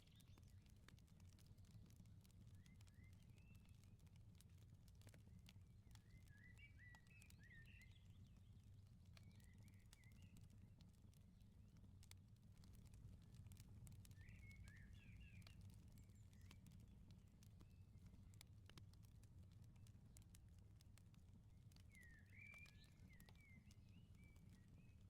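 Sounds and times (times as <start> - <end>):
wood fire crackling: 0.0 - 25.0
small birds twittering: 14.1 - 16.6, 21.9 - 25.0.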